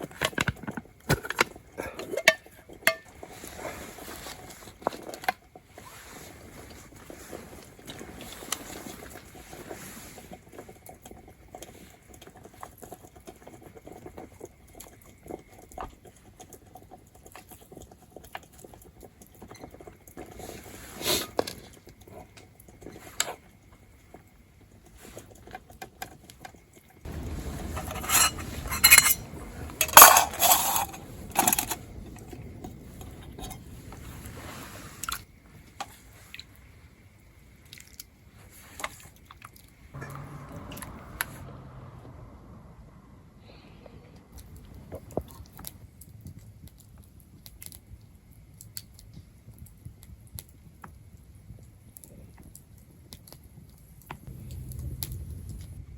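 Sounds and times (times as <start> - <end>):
utensils clinking on cookware: 27.2 - 31.8.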